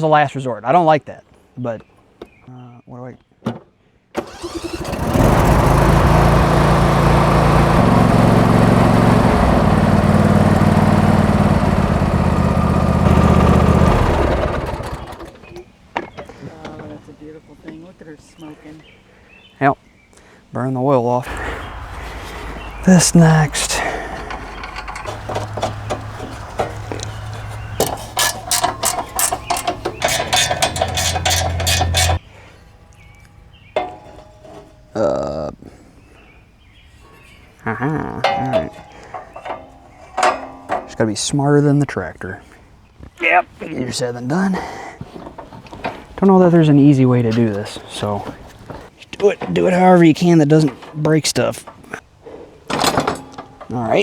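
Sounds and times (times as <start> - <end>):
lawn tractor engine running: 4.2 - 15.5, 21.3 - 34.9, 38.2 - 41.3.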